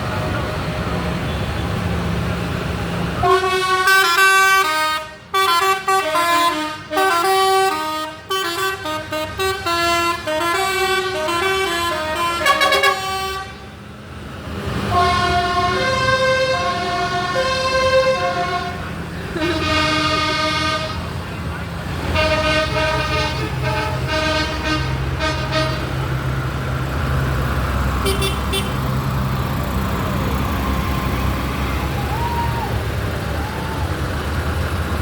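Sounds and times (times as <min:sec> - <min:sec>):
musical vehicle horn tune: 0:03.2 - 0:13.7, 0:14.9 - 0:21.1, 0:22.0 - 0:25.9, 0:28.0 - 0:28.9
engines running: 0:08.9 - 0:35.0.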